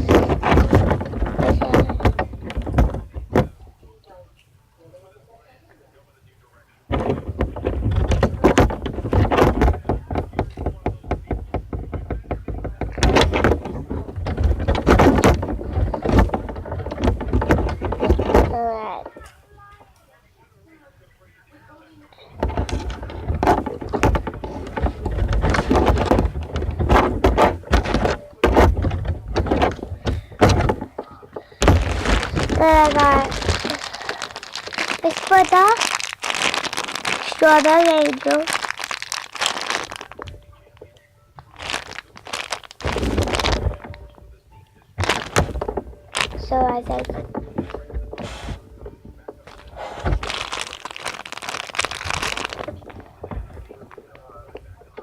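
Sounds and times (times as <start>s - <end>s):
clicks and knocks of handled items: 0.0s - 3.6s, 6.9s - 20.0s, 22.2s - 44.3s, 45.0s - 55.0s
plastic packaging crinkling: 22.4s - 44.2s, 45.0s - 55.0s.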